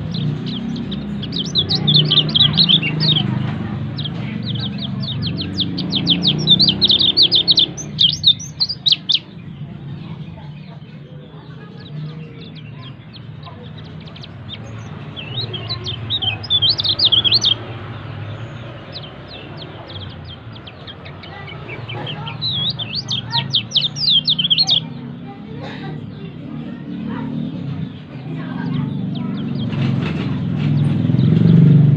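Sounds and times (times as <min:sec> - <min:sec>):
bird twittering: 0:00.0 - 0:09.9, 0:11.7 - 0:25.2.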